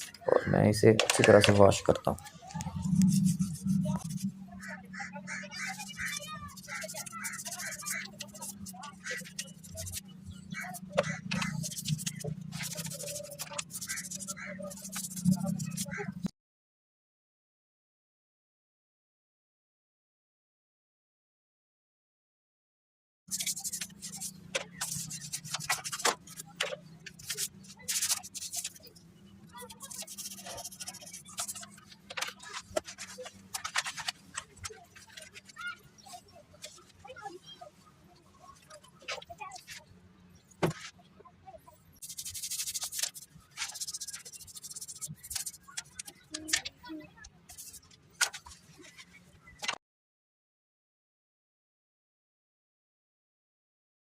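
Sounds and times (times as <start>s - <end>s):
steady low hum: 2.2s - 5.2s
brush scrubbing engine parts: 2.7s - 4.4s, 5.5s - 16.2s, 23.3s - 29.0s, 29.6s - 35.6s, 42.0s - 46.7s, 47.5s - 49.2s
brush scrubbing engine: 5.9s - 15.8s.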